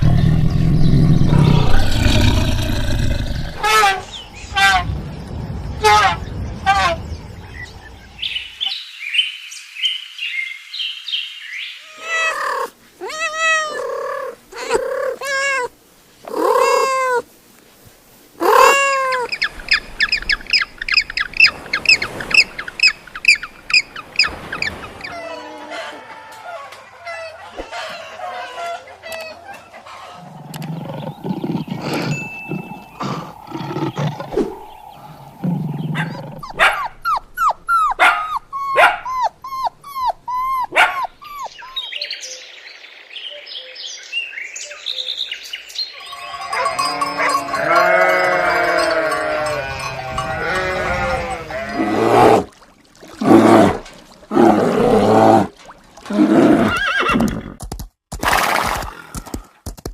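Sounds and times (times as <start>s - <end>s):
bleating chorus: 46.3s - 52.5s.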